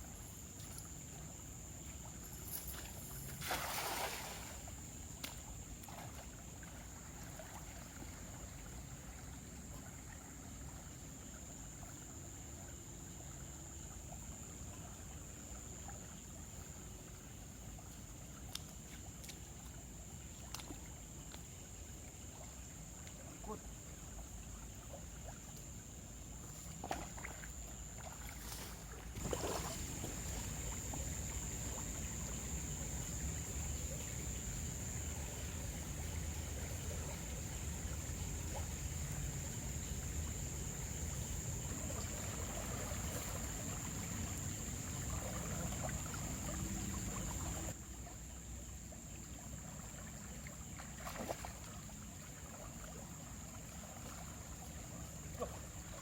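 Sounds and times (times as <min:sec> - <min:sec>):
river water running: 0:00.0 - 0:56.0.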